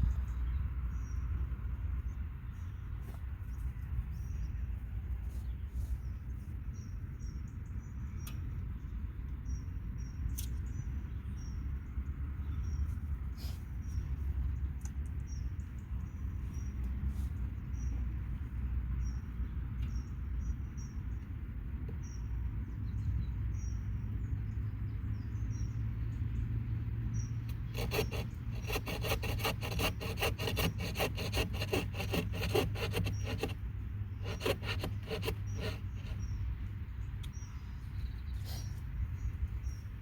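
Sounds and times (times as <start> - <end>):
rasping scraping strokes: 27.6 - 33.6, 34.2 - 36.3.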